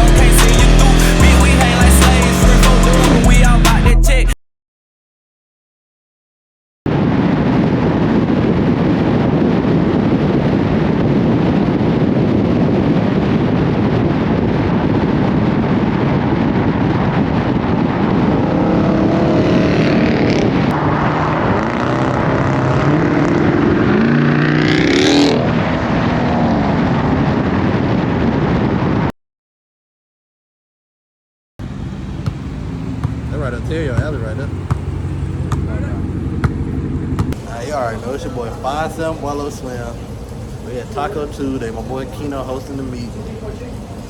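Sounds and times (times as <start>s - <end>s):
dense rushing noise: 0.0s - 3.8s, 6.9s - 29.1s, 31.6s - 44.0s
car engine revving: 0.0s - 4.2s, 18.2s - 27.0s, 31.6s - 37.4s.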